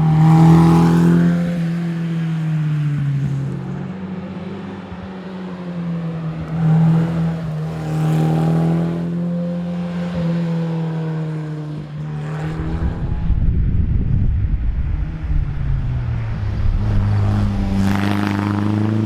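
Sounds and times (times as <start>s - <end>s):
rough low rumble: 12.5s - 18.7s.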